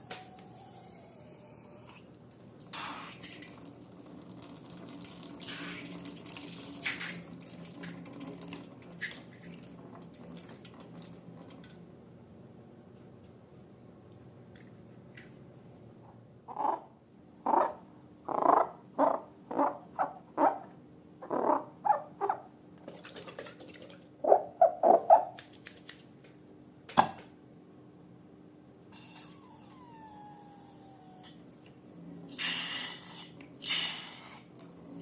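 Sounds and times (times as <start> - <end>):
liquid pouring and splashing: 2.2 - 11.8, 22.8 - 24.1
short loud squeals: 29.0 - 31.4.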